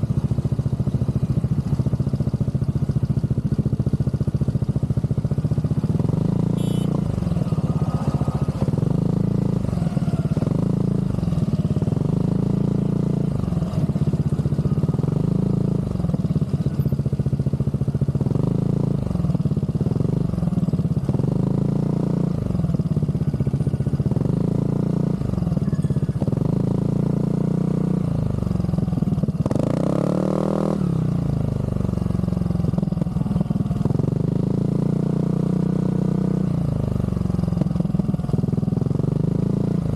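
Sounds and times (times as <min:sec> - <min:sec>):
scooter engine revving: 0:05.5 - 0:17.4, 0:29.1 - 0:31.2.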